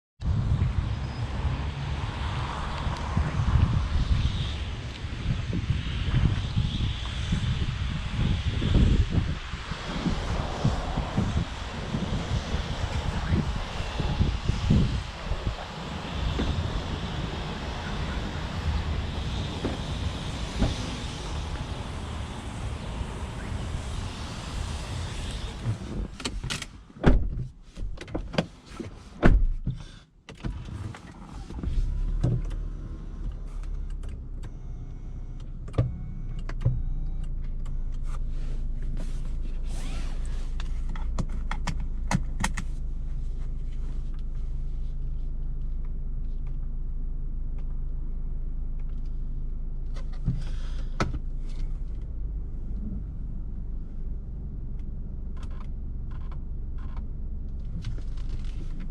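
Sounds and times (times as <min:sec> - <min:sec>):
car engine idling hum: 0:07.5 - 0:27.7, 0:31.4 - 0:58.9
clicks and knocks of car controls: 0:35.4 - 0:38.1, 0:40.9 - 0:42.7.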